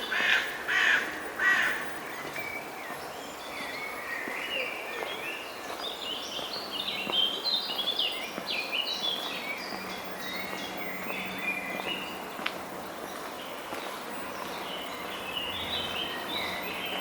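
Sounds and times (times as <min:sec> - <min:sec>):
small birds chirping: 0:00.0 - 0:17.0
background hum: 0:05.9 - 0:17.0.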